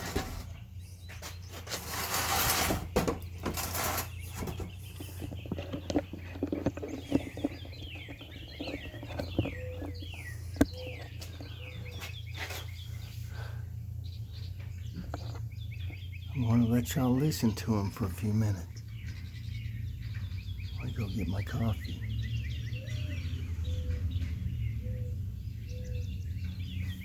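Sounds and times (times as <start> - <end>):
songbirds singing and chirping: 0.0 - 27.0
steady low rumble: 6.1 - 22.1.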